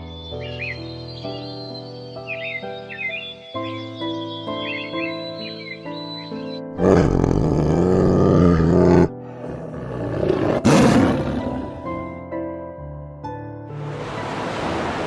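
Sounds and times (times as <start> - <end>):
background music: 0.0 - 15.0
big cat roaring: 6.8 - 12.2.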